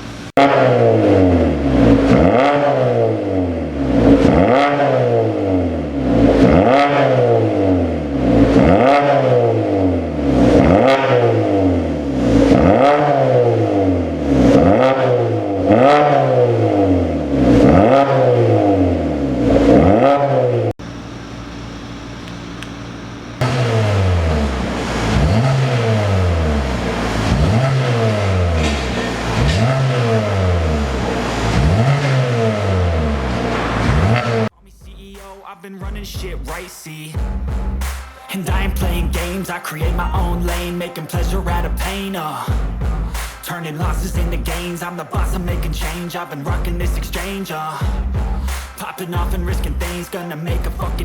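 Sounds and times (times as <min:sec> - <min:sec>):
car engine revving: 0:00.0 - 0:21.4, 0:22.1 - 0:34.6, 0:36.3 - 0:51.0
engine running steadily: 0:20.8 - 0:34.5, 0:38.6 - 0:51.0.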